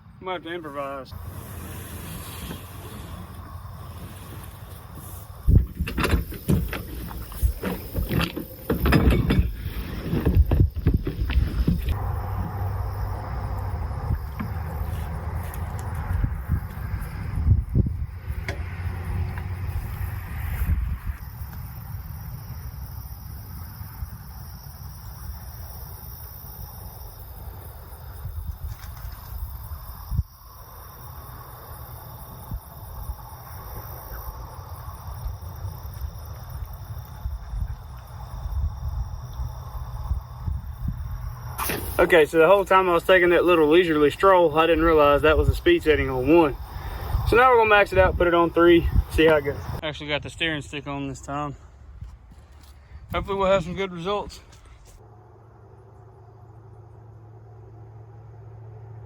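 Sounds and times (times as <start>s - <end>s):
gusty wind on microphone: 1.1s - 22.6s, 28.1s - 31.0s, 32.2s - 42.0s, 44.7s - 50.4s
handling knocks and bumps: 5.5s - 12.0s.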